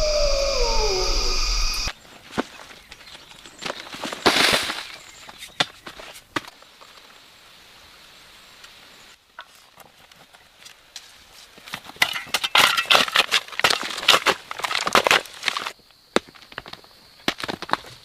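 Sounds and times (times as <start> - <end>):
dry wood cracking and knocking: 11.6 - 18.0.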